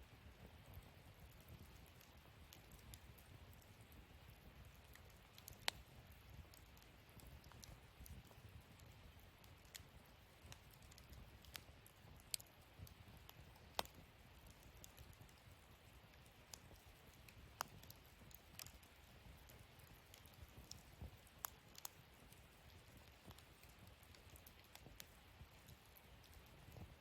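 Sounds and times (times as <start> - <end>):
faint low hiss: 0.0 - 27.0
wood fire crackling and popping: 0.0 - 27.0.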